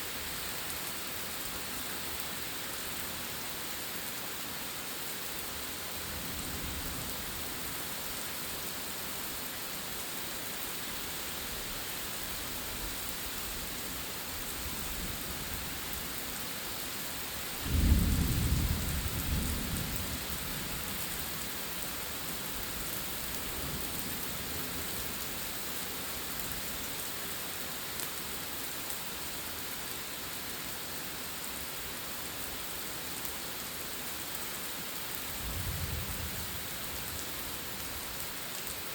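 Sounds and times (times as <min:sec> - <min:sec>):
thunder rumbling: 0:17.7 - 0:20.3.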